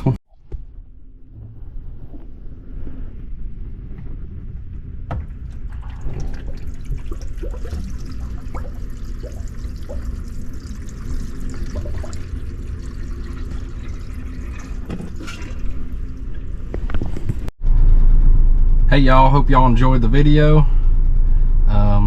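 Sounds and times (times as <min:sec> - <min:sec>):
low hum: 0:00.0 - 0:22.0
water gurgling through drain: 0:05.1 - 0:17.3.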